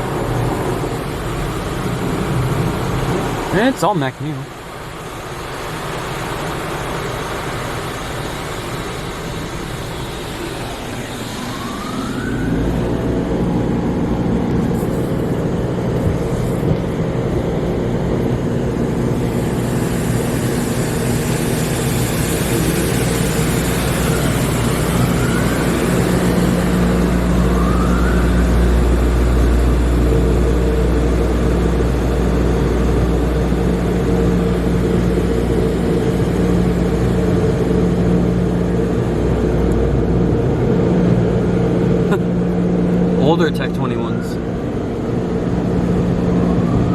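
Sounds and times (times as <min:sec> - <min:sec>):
deep drone: 0:00.0 - 0:46.9
motor hum: 0:04.8 - 0:43.1
spraying water: 0:19.2 - 0:28.0.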